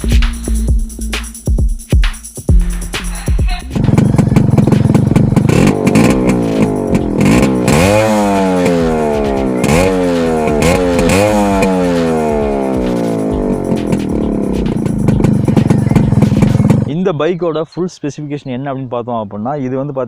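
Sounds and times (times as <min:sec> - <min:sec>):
motorcycle engine revving: 0:03.6 - 0:17.0.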